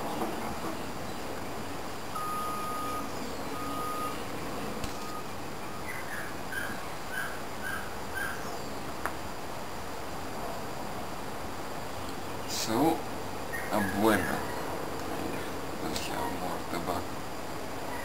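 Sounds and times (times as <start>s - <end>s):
background hiss: 0.0s - 18.0s
birds whistling calls: 2.2s - 8.8s, 13.5s - 15.5s.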